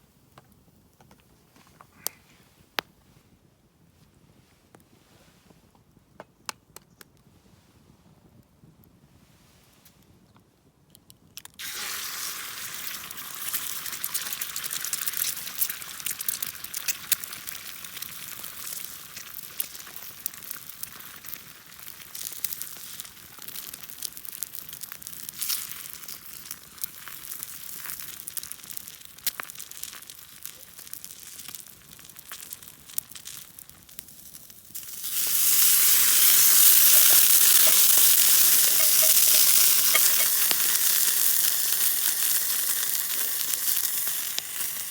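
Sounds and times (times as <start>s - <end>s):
sharp pops and crackles: 0.2s - 3.1s, 4.0s - 7.3s, 9.8s - 44.9s
food sizzling in a pan: 11.6s - 44.9s.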